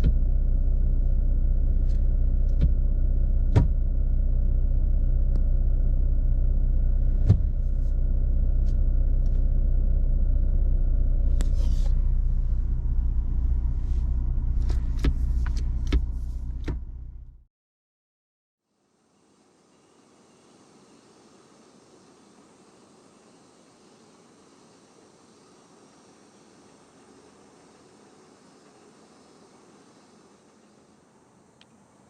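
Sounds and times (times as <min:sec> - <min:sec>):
car engine rumbling: 0:00.0 - 0:17.5
sharp clicks and knocks: 0:14.6 - 0:17.0.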